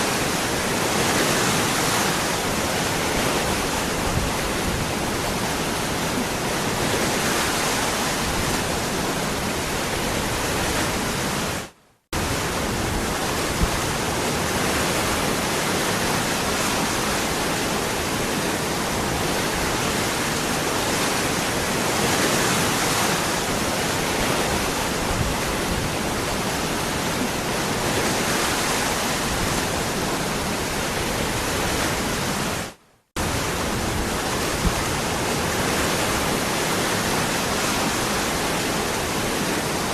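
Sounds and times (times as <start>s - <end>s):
waterfall rushing: 12.2s - 39.9s.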